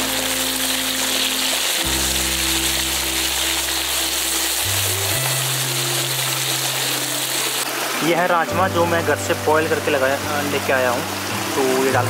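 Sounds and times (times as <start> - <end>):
onions sizzling in oil: 0.0 - 12.0
slow held chords music: 0.0 - 12.0.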